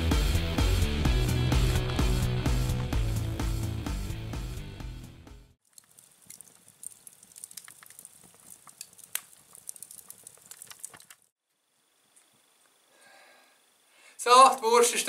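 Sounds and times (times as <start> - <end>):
sausage sizzling: 5.6 - 11.3
campfire crackling pops: 5.7 - 11.3.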